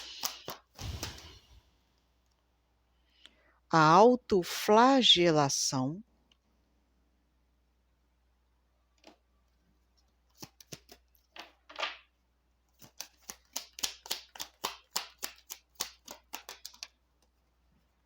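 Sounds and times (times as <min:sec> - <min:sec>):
card slaps and flicks: 0:00.0 - 0:01.5, 0:10.3 - 0:11.0, 0:12.8 - 0:16.9
cards being shuffled: 0:00.0 - 0:01.6, 0:10.0 - 0:11.8, 0:12.7 - 0:17.5.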